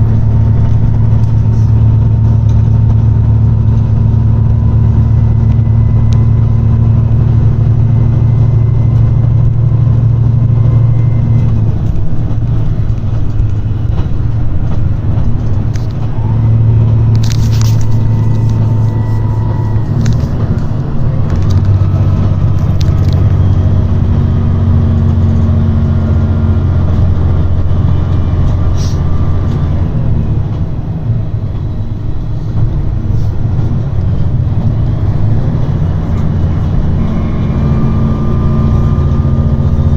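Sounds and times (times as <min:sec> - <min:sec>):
diesel train engine droning: 0:00.0 - 0:39.9
wheel squeal on track: 0:04.1 - 0:11.9, 0:15.7 - 0:23.8, 0:35.4 - 0:39.9
train wheel clicks: 0:11.4 - 0:23.7.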